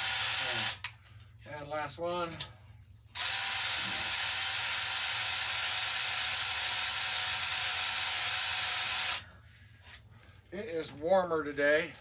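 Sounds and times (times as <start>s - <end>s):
drill spinning cylinder hone: 0.0s - 0.8s, 3.2s - 9.3s.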